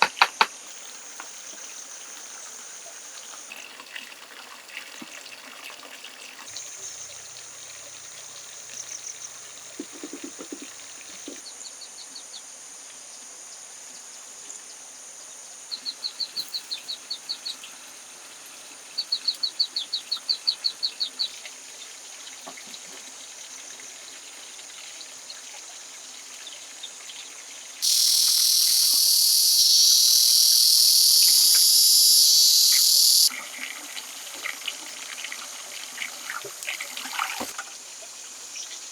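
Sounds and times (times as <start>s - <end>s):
insects buzzing: 0.0s - 3.9s, 6.5s - 11.6s, 27.6s - 38.9s
rapid high chirps: 27.8s - 33.3s
shrill insect drone: 27.8s - 33.3s.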